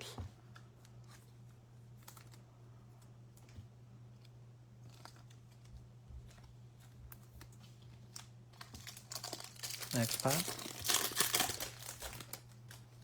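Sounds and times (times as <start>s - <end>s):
trading cards and wrappers rustling: 6.8s - 13.0s.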